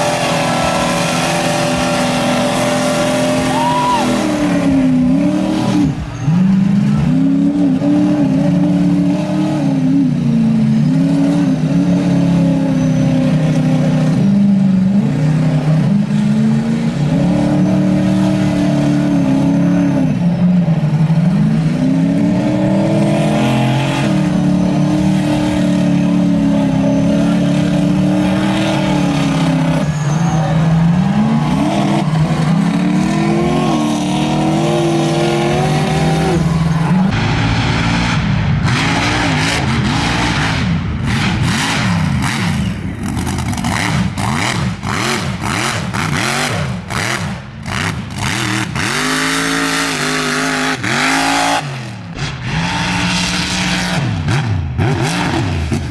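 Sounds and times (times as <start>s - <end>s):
engine crackles: 0.0s - 55.9s
truck engine revving hard: 0.0s - 55.9s.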